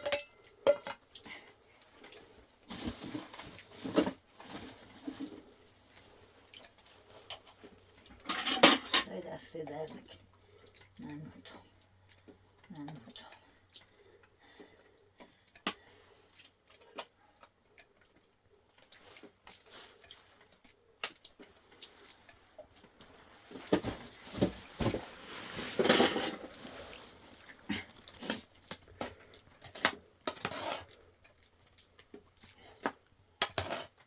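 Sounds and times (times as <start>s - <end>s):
objects knocking and clattering: 0.0s - 1.1s, 7.2s - 9.1s, 23.0s - 30.9s
rustling: 2.0s - 7.9s, 21.6s - 28.5s.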